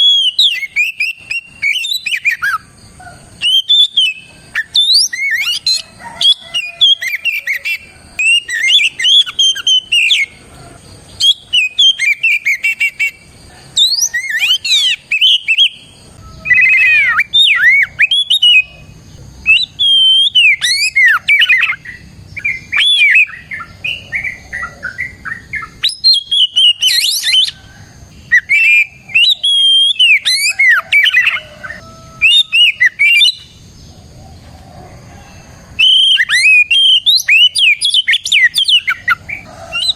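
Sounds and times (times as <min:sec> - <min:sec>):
magpie-robin singing: 0:00.0 - 0:02.7, 0:03.3 - 0:10.4, 0:11.1 - 0:27.6, 0:28.2 - 0:33.8, 0:35.8 - 0:39.9.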